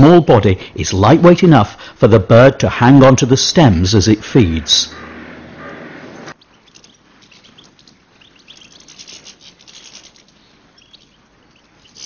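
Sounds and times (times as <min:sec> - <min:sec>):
faint birds twittering: 0:03.6 - 0:12.0.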